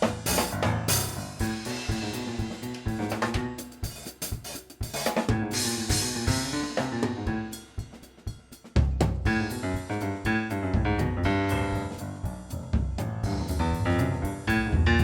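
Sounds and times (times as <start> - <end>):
bass notes: 0.0 - 3.6, 5.3 - 7.8, 9.1 - 15.0
drum kit: 0.0 - 15.0.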